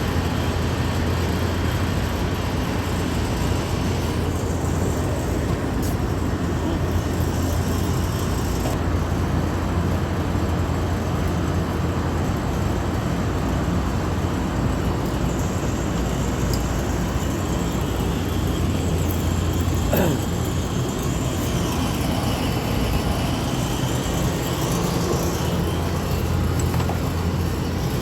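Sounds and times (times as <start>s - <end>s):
machinery low hum: 0.0s - 28.0s
broad rushing noise: 14.0s - 28.0s.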